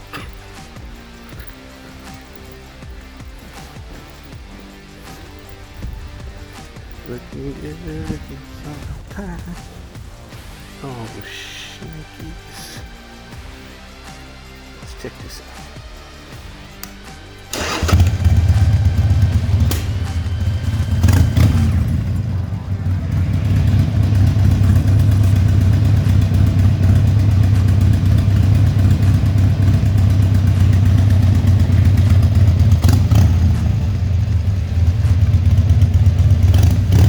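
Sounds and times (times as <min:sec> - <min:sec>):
motorcycle engine running: 0:00.0 - 0:14.3, 0:15.8 - 0:37.0.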